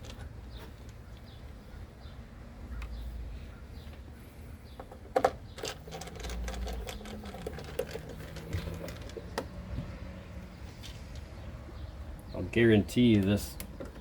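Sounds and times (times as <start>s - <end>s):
sharp clicks and knocks: 13.1s - 14.0s.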